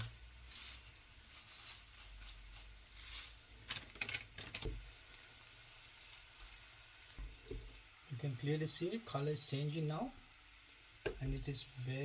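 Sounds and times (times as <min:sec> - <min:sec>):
garlic frying in oil: 0:00.0 - 0:12.0.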